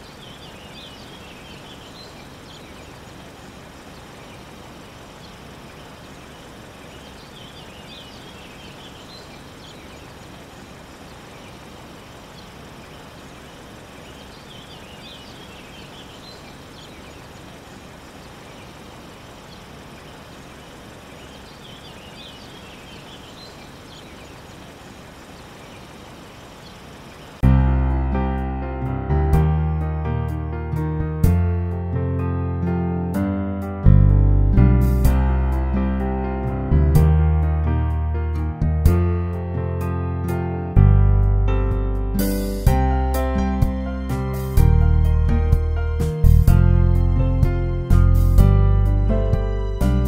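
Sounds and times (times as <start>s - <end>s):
steady low background hiss: 0.0s - 27.6s
songbird chirping: 0.0s - 38.5s, 39.2s - 50.0s
music: 27.4s - 50.0s.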